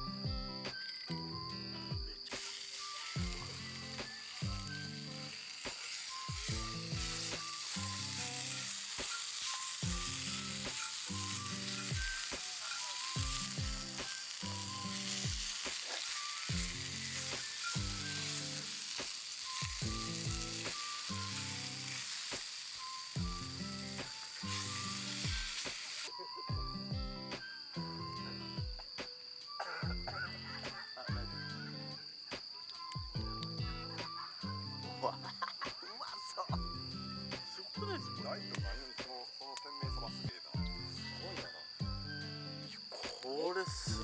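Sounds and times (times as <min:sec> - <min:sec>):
food sizzling in a pan: 0:00.0 - 0:28.4, 0:29.0 - 0:42.2, 0:42.8 - 0:44.0
background music with drum beat: 0:00.0 - 0:42.3, 0:42.9 - 0:44.0.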